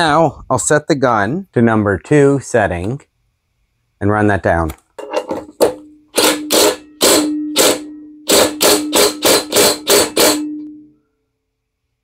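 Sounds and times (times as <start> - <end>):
impact wrench bursts: 5.5 - 10.6.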